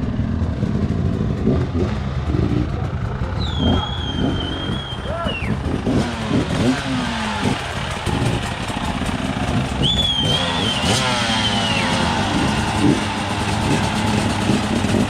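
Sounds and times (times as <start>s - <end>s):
motorcycle engine revving: 0.0s - 15.0s
riding noise rush: 0.0s - 15.0s
high whistle-like tone: 3.4s - 5.6s, 9.7s - 13.0s.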